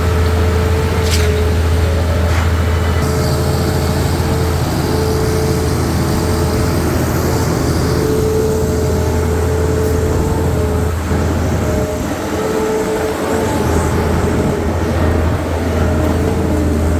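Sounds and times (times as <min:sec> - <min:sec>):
diesel truck engine running: 0:00.0 - 0:16.9
mid-pitched whine: 0:00.0 - 0:16.9.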